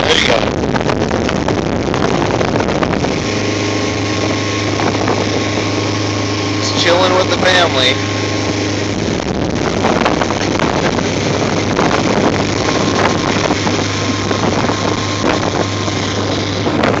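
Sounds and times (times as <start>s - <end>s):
boat engine hum: 0.0s - 17.0s
water rushing: 0.0s - 17.0s
wind buffeting microphone: 0.0s - 17.0s.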